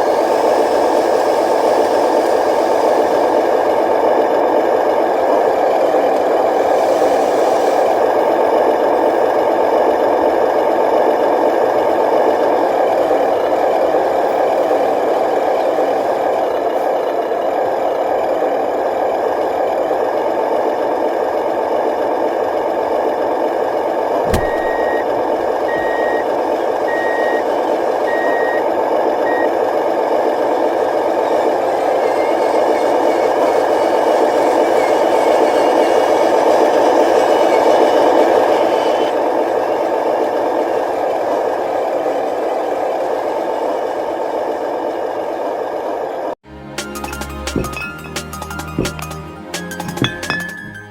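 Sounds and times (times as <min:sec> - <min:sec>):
short reversing beeps: 0:24.3 - 0:25.1, 0:25.7 - 0:26.3.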